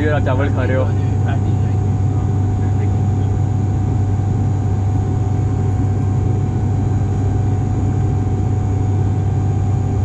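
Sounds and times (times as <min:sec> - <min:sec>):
faint constant whine: 0:00.0 - 0:10.0
propeller and engine drone: 0:00.0 - 0:10.0.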